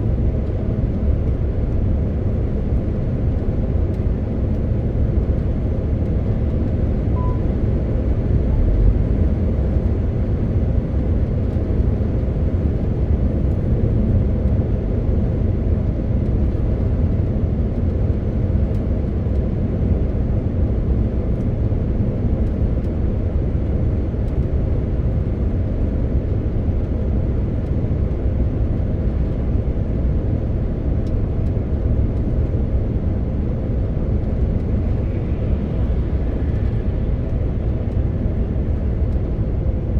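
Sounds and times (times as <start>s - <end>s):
faint beep: 7.2s - 7.5s
truck engine rumble: 27.7s - 39.9s.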